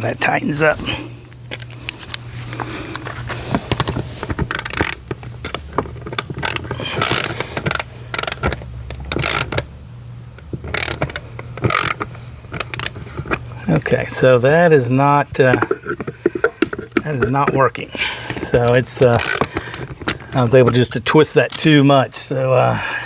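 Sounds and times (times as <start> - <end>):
screw scraping: 0.6 - 9.7, 10.4 - 14.4, 15.2 - 20.8
screw clicking while turned: 3.7 - 9.7, 10.6 - 13.4, 18.3 - 20.4.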